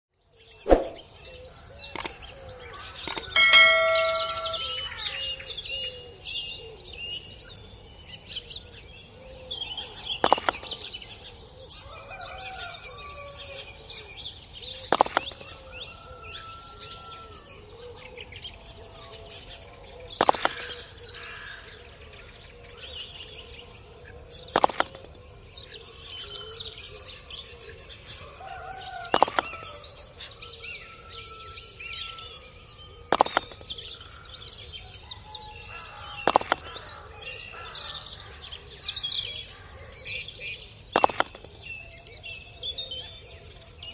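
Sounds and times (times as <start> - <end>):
birds chirping: 0.5 - 12.6, 13.6 - 43.9
sharp knocks: 3.1 - 4.7, 10.2 - 10.8, 15.0 - 15.4, 24.6 - 25.2, 29.2 - 29.7, 33.1 - 33.7, 36.3 - 36.9, 41.0 - 41.6
metallic ding: 3.1 - 4.8.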